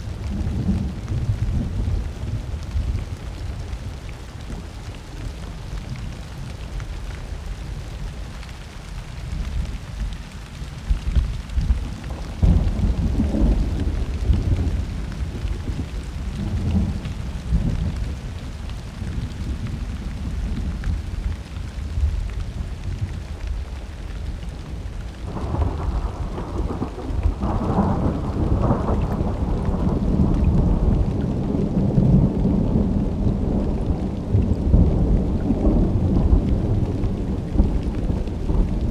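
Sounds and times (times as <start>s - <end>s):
steady rain: 0.0s - 38.9s
rolling thunder: 11.1s - 38.9s.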